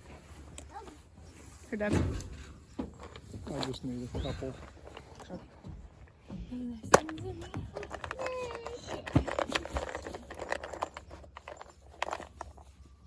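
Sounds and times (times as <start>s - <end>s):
screws clicking and rattling: 7.0s - 12.8s.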